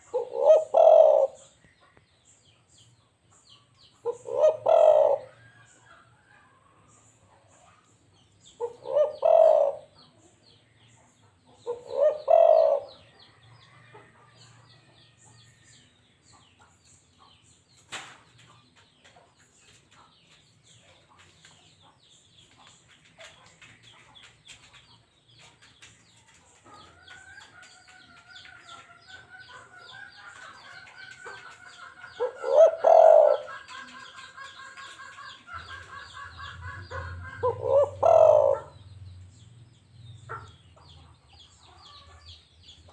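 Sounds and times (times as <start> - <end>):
dove cooing: 0.0 - 1.5, 4.0 - 5.4, 8.6 - 10.0, 11.6 - 13.0, 32.1 - 35.0, 35.7 - 38.7
rapidly repeating bird calls: 0.0 - 6.2, 6.9 - 14.5, 15.2 - 42.9.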